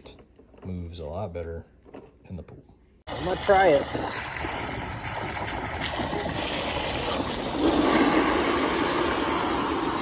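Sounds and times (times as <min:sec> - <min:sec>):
pressurized water rushing: 0:03.1 - 0:10.0.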